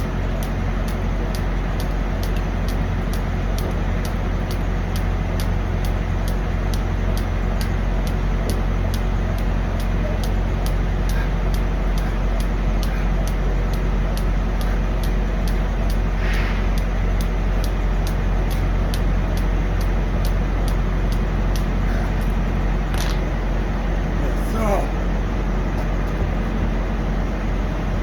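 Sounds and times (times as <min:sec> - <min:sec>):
faint regular ticking: 0:00.0 - 0:24.0
diesel truck engine idling: 0:00.0 - 0:28.0
brief air hisses: 0:16.2 - 0:16.8.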